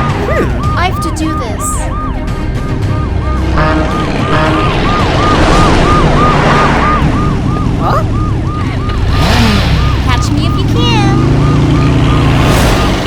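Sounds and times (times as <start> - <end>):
siren yelping: 0.0 - 12.8
low vehicle rumble: 1.8 - 13.0
rushing noise: 3.3 - 7.6.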